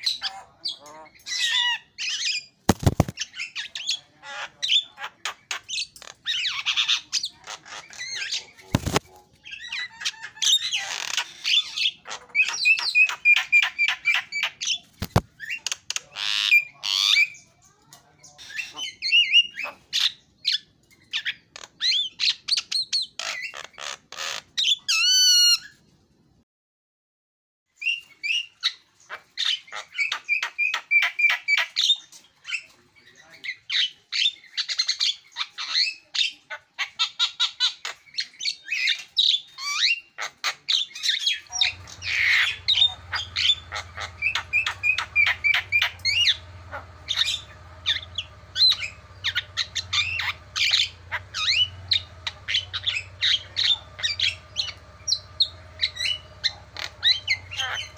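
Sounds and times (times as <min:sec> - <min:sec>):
bird chirping and whistling: 0:41.5 - 0:57.9
steady low hum: 0:41.5 - 0:57.9.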